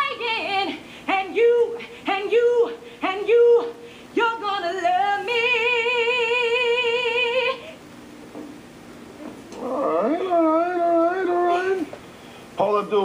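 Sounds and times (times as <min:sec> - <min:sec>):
woman singing with vibrato: 0:00.0 - 0:07.8
low background noise: 0:00.0 - 0:13.0.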